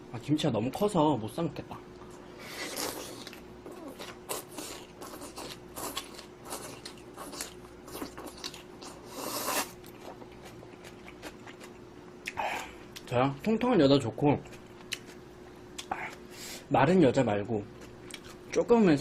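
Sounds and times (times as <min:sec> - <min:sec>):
faint steady hum: 0:00.0 - 0:19.0
person chewing and crunching food: 0:02.0 - 0:13.6, 0:14.4 - 0:16.3, 0:17.6 - 0:18.7.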